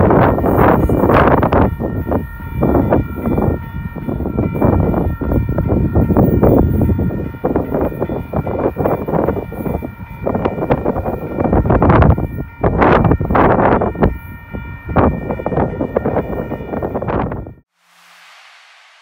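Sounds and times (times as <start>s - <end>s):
wind gusts on microphone: 0.0s - 17.6s
freight train rumble: 0.0s - 19.0s
steady high ringing: 0.0s - 19.0s.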